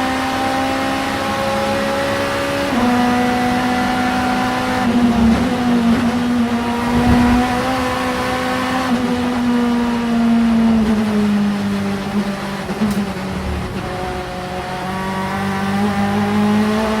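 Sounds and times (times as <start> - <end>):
race car engine at high revs: 0.0 - 17.0.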